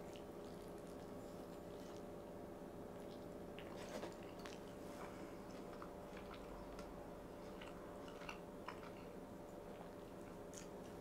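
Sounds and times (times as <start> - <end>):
low steady hum: 0.0 - 11.0
person chewing food: 3.0 - 11.0.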